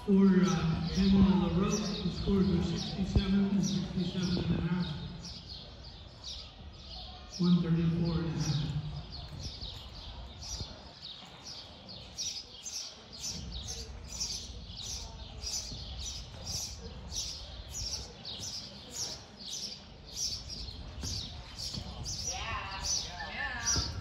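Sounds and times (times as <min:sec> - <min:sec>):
low rumble of arena: 0:00.0 - 0:05.9.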